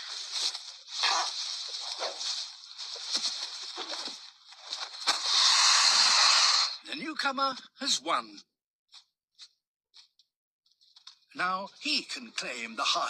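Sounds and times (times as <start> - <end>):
lizards scuffling and scraping: 0.0 - 5.5.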